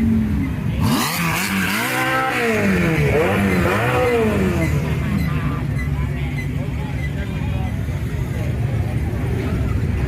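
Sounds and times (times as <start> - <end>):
car engine revving: 0.7 - 5.6.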